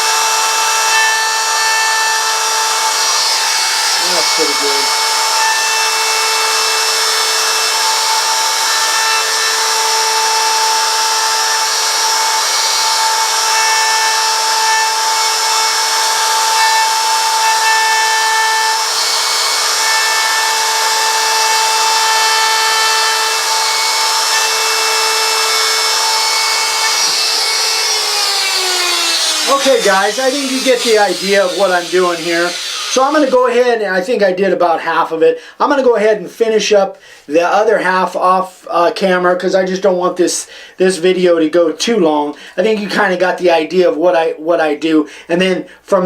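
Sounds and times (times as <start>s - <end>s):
router whining cutting wood: 0.0s - 33.8s.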